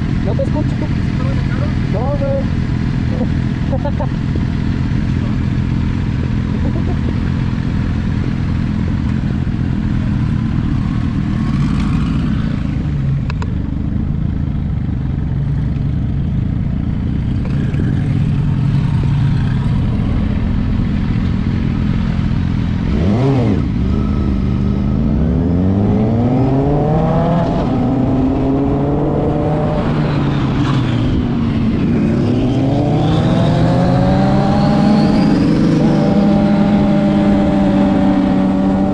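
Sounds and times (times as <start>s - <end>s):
sports car engine revving: 21.8s - 38.9s.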